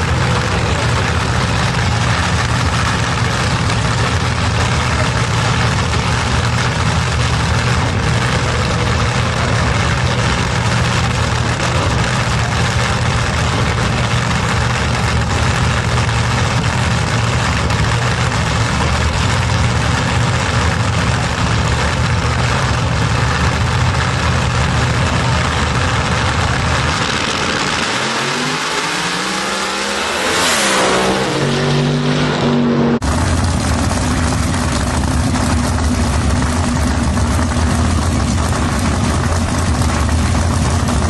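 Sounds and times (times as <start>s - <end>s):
engine accelerating: 0.0s - 41.0s
race engine idling: 0.0s - 41.0s.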